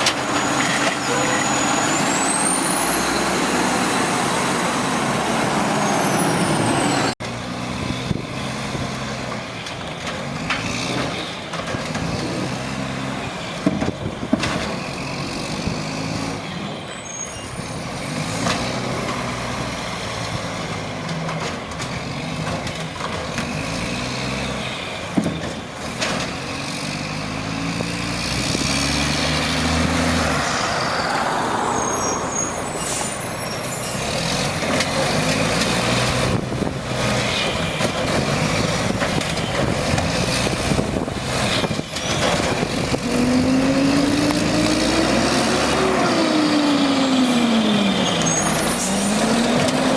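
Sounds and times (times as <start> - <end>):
diesel engine revving: 0.0 - 49.9
rising whine: 1.4 - 7.2, 30.2 - 33.6.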